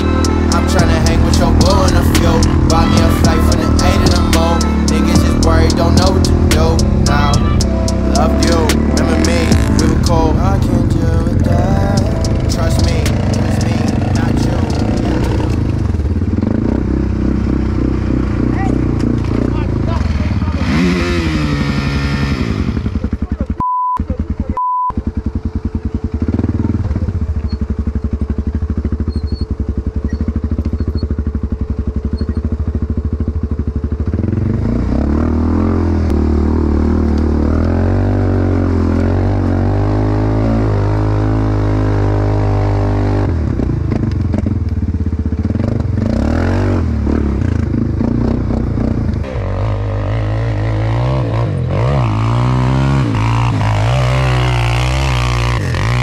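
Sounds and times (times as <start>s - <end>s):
short electronic beeps: 0.0s - 15.5s, 23.6s - 25.0s
dirt bike engine revving: 0.0s - 56.0s.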